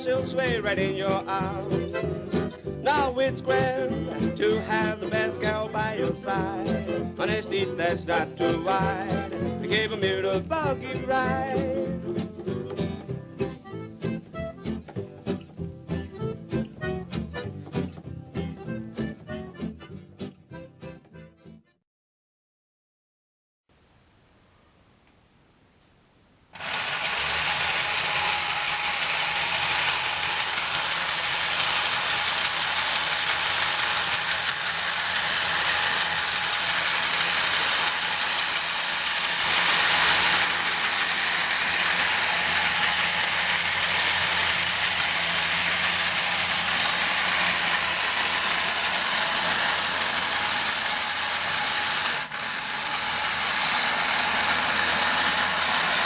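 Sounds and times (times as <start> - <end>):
toy gears whirring and rattling: 26.6 - 56.0.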